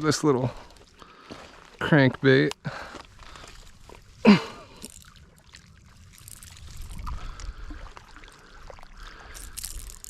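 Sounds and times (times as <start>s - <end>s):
wind on microphone: 5.9s - 8.1s
light clicks and rustles: 9.3s - 10.0s.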